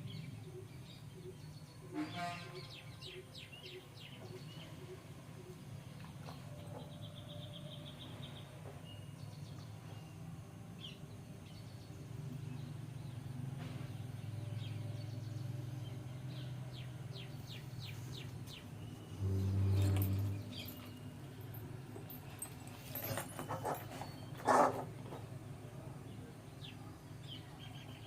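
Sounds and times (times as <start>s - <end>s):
birds chirping: 0.0s - 10.2s, 10.8s - 28.0s
low steady hum: 14.3s - 24.2s.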